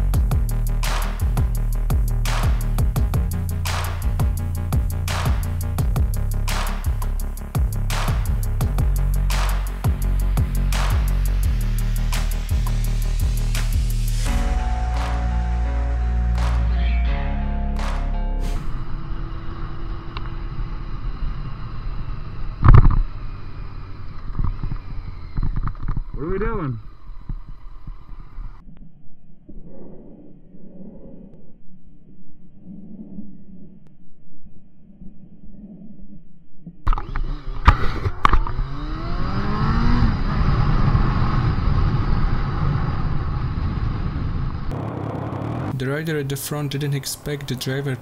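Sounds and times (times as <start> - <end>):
motorcycle engine revving: 18.4 - 27.6, 36.9 - 47.7
vehicle noise: 18.4 - 28.6, 36.9 - 48.0.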